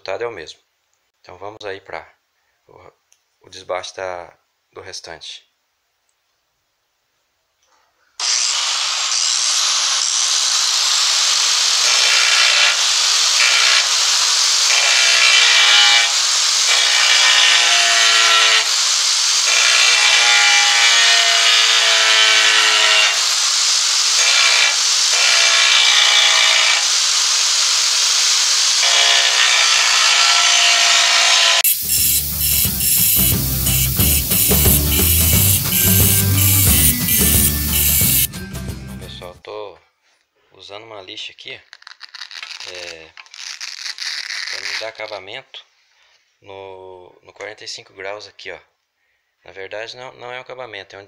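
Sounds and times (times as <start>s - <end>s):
angle grinder grinding tile: 8.2s - 38.3s, 41.8s - 45.1s.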